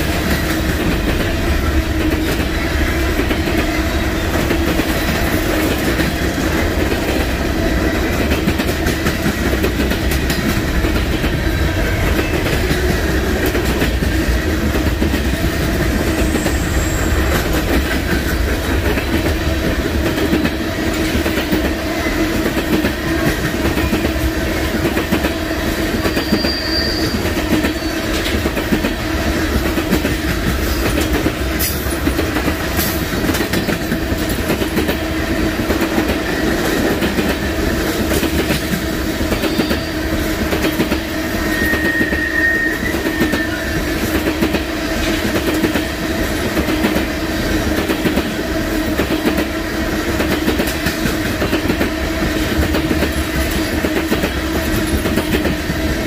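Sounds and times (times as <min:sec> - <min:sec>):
freight cars rolling on rails: 0:00.0 - 0:56.0
high wheel squeals: 0:16.1 - 0:17.6, 0:26.0 - 0:28.2, 0:41.4 - 0:43.8.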